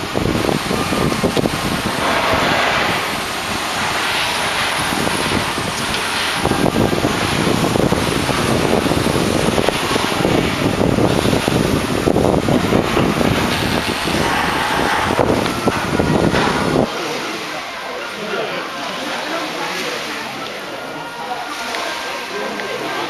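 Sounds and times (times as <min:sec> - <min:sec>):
wind buffeting microphone: 0:00.0 - 0:17.4
ship rushing through water: 0:00.0 - 0:23.0.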